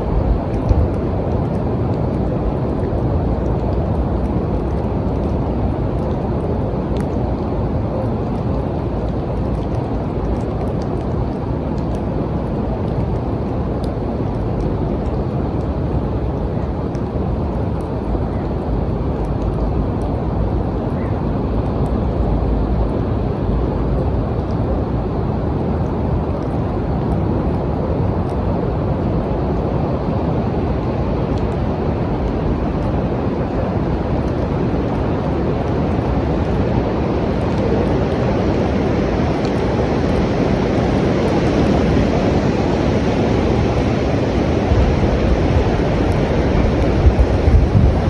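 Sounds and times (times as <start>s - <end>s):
deep rumbling rain: 0.0s - 48.0s
raindrop ticks: 0.0s - 48.0s.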